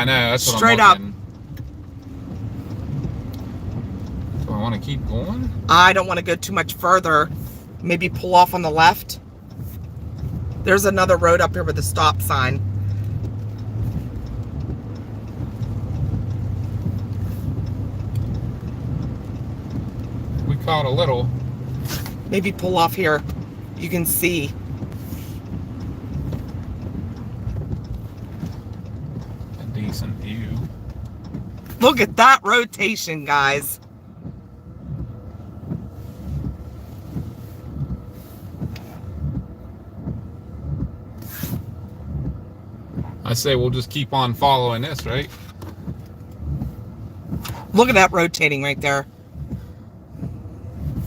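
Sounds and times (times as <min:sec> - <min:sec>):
car interior road noise: 0:00.0 - 0:51.0
vehicle low rumble: 0:00.0 - 0:51.0.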